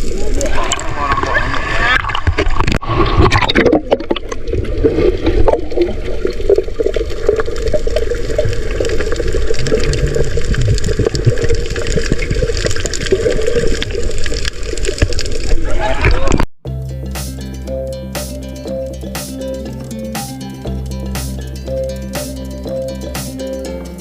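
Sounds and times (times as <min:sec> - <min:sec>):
sea water splashing: 0:00.0 - 0:16.2
muffled water rumble: 0:00.0 - 0:16.4.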